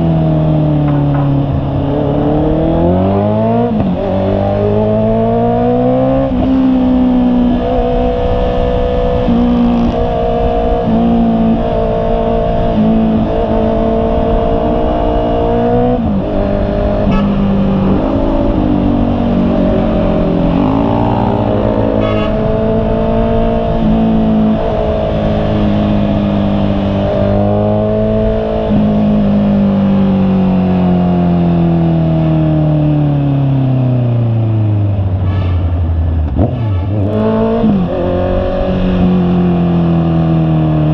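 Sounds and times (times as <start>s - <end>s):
motorcycle engine running: 0.0s - 5.1s.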